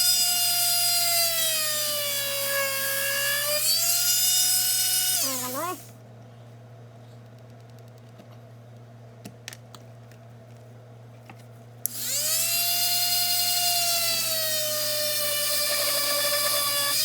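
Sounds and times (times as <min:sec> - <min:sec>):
rotary tool high whine: 0:00.0 - 0:05.9, 0:11.9 - 0:17.0.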